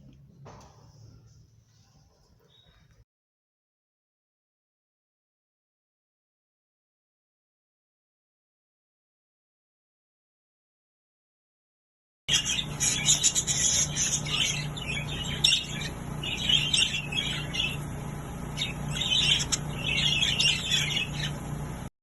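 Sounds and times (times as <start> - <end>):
cage birds chirping and squawking: 12.3 - 21.9
low pulsing hum: 12.3 - 21.9.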